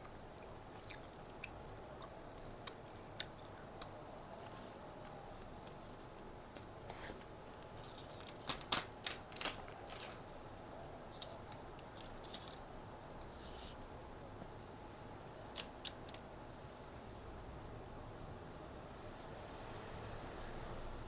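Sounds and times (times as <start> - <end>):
faint room noise: 0.0 - 21.0
crisp snack crackling: 7.6 - 10.4, 11.1 - 12.8.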